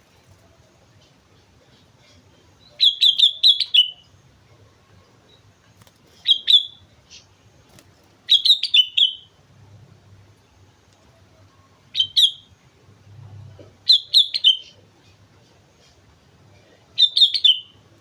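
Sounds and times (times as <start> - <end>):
bulbul singing: 1.7 - 4.4, 6.2 - 7.5, 8.3 - 9.4, 11.8 - 12.6, 13.8 - 15.2, 16.9 - 17.9.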